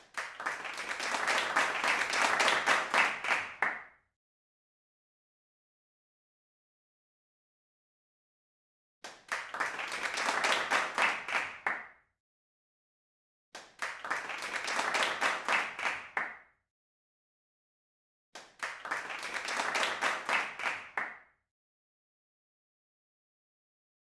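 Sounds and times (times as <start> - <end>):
group hand clapping: 0.0 - 3.9, 9.0 - 11.9, 13.6 - 16.4, 18.4 - 21.2.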